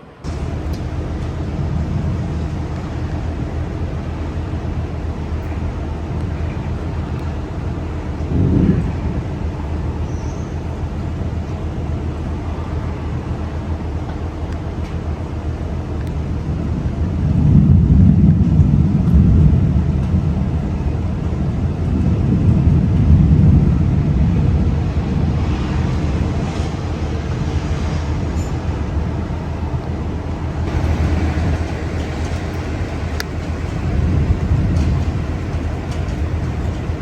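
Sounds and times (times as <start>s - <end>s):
loud low rumble: 0.1s - 5.7s, 30.6s - 37.0s.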